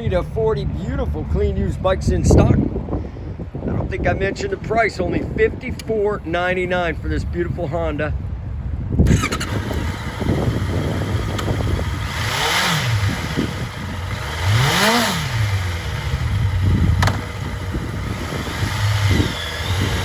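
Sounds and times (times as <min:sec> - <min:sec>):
motorcycle engine idling and revving: 0:09.0 - 0:20.0
sharp click: 0:17.0 - 0:17.2.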